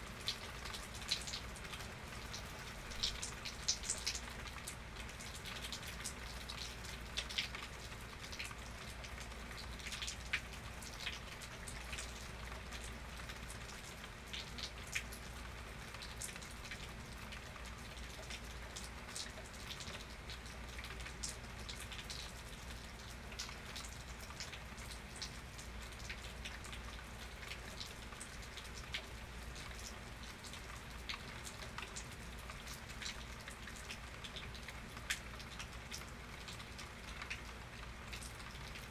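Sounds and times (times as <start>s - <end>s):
rain falling: 0.0s - 38.9s
raindrops ticking on a surface: 0.0s - 38.9s.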